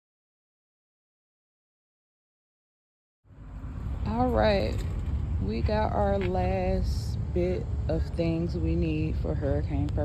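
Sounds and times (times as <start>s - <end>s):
low rumble with faint hiss: 3.4s - 10.0s.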